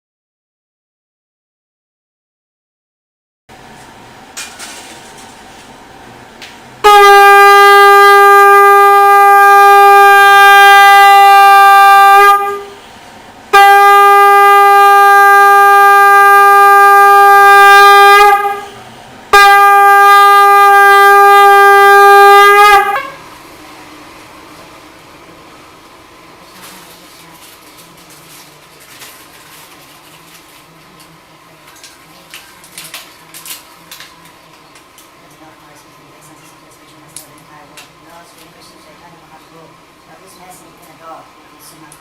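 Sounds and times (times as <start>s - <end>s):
conch shell blasts: 6.8s - 12.9s, 13.5s - 23.4s.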